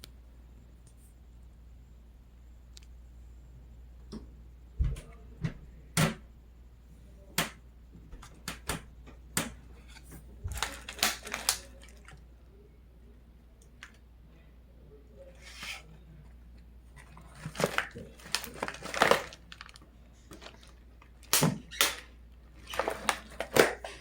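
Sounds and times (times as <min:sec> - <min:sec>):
snack wrapper crinkling: 0:10.6 - 0:12.2, 0:17.0 - 0:23.8.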